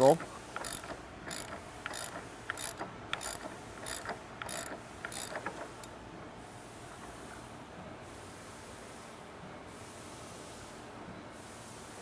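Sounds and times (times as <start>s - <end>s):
ratchet wrench clicking: 0.0s - 5.9s.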